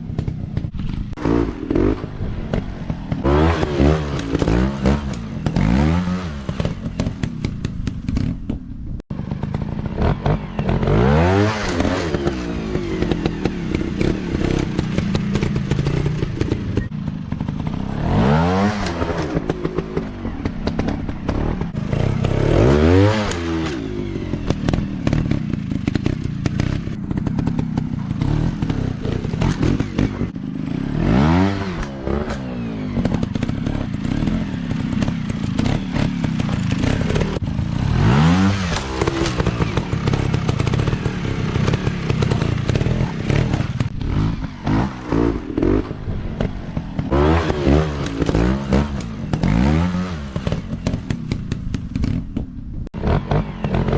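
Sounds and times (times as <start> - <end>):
dirt bike engines revving: 0.0 - 8.3, 9.2 - 53.9
clattering and scraping: 50.2 - 53.2.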